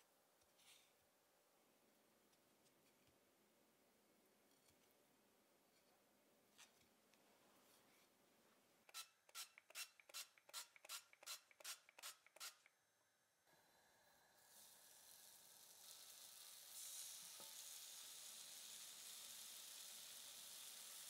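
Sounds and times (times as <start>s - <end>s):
food sizzling in a pan: 13.7s - 21.0s.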